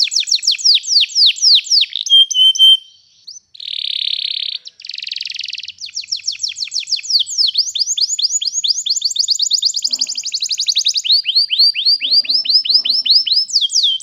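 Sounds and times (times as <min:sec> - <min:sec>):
canary singing: 0:00.0 - 0:14.0
buzzy rattling trills: 0:09.8 - 0:10.9, 0:11.8 - 0:13.9.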